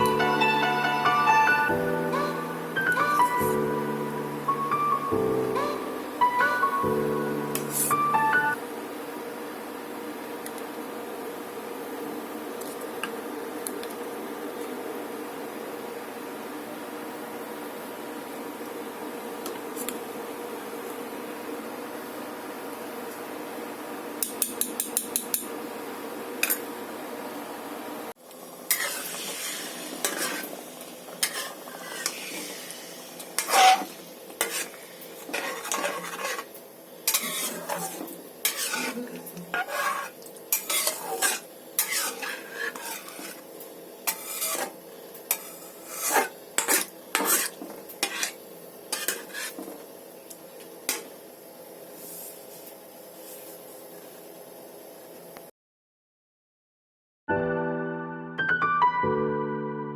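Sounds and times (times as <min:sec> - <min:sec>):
metal spoon scraping cookware: 0:33.4 - 0:34.7, 0:35.3 - 0:36.5, 0:37.1 - 0:43.4, 0:45.3 - 0:49.6.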